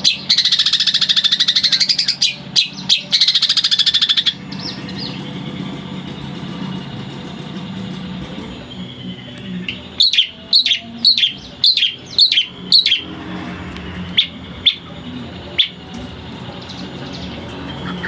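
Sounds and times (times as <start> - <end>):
steady low hum: 0.0 - 18.0
shrike calling sharp notes: 8.6 - 18.0.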